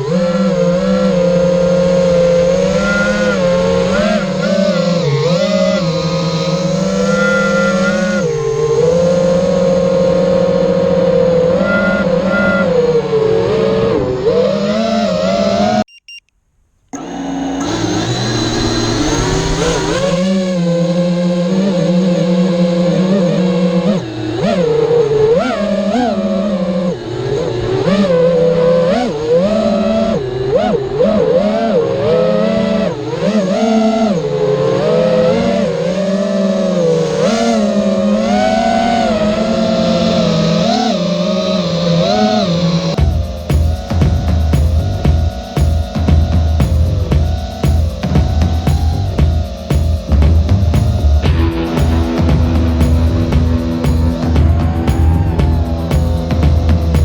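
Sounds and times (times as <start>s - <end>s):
drone motors whining: 0.0s - 16.2s, 16.9s - 57.0s
low droning tone: 42.8s - 57.0s.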